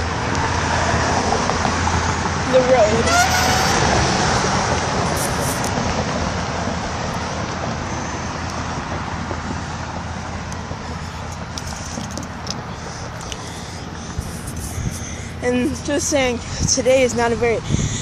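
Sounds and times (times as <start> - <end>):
vehicle passing by: 0.0 - 16.8.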